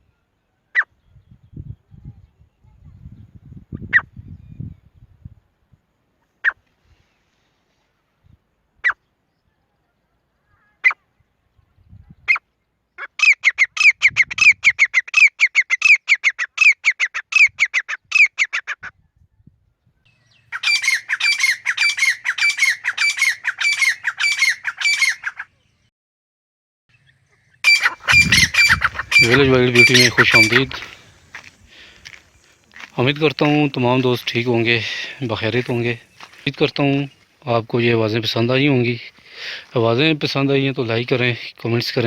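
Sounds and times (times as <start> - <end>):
francolin calling: 12.2 - 18.7, 20.1 - 25.7, 26.9 - 39.8.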